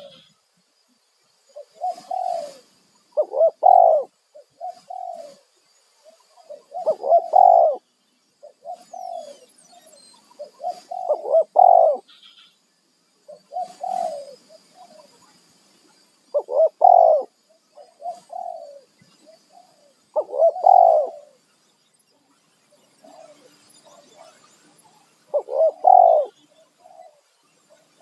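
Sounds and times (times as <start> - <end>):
doves cooing: 0.0 - 0.3, 1.5 - 5.5, 6.1 - 7.8, 8.4 - 12.1, 13.3 - 15.1, 16.3 - 21.4, 25.3 - 27.2.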